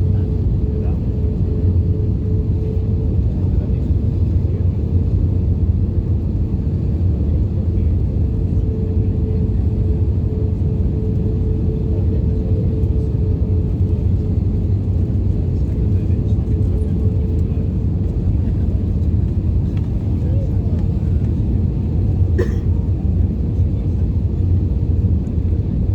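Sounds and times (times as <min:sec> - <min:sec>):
aircraft cabin engine rumble: 0:00.0 - 0:25.9
constant hum: 0:00.0 - 0:25.9.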